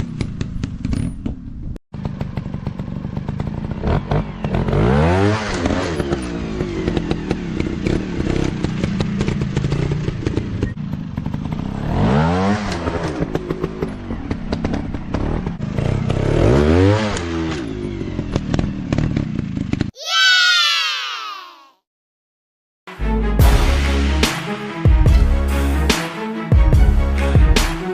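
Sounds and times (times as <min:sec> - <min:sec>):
bike rattling and knocking: 0:00.0 - 0:04.7, 0:05.6 - 0:11.8, 0:17.8 - 0:19.9
dirt bike engine revving: 0:02.0 - 0:13.8, 0:14.5 - 0:19.7.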